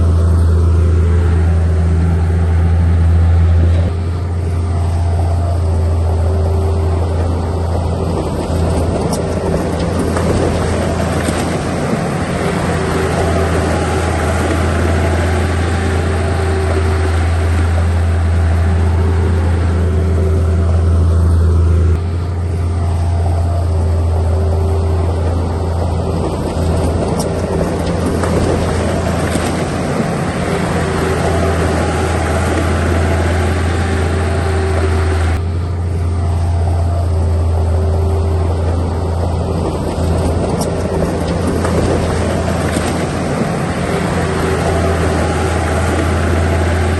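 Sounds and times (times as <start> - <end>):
heavy diesel engine droning: 0.0 - 46.9.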